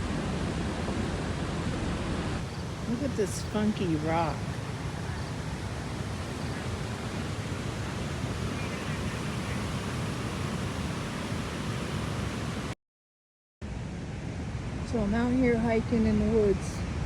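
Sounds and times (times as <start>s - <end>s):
creek water rushing: 0.0s - 12.8s.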